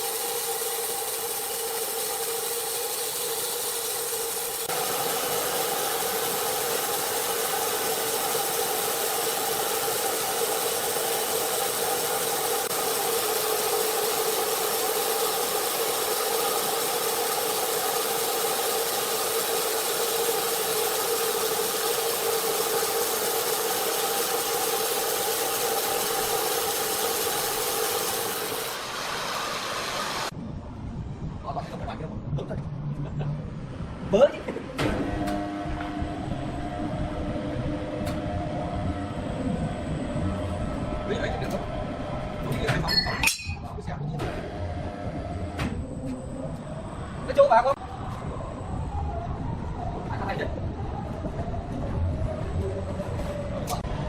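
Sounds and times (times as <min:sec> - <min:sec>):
sawmill saw running: 0:00.0 - 0:30.3, 0:34.9 - 0:42.8.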